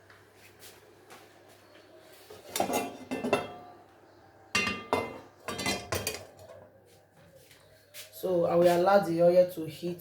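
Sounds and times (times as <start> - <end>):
metal pots clanking: 2.4 - 3.8, 4.5 - 6.6.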